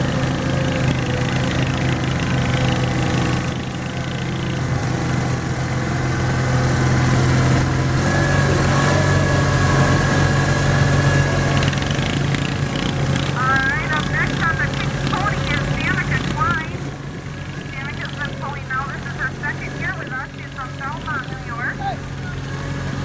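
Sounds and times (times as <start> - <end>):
garden tractor engine running: 0.0 - 23.0
faint whine: 13.4 - 22.5.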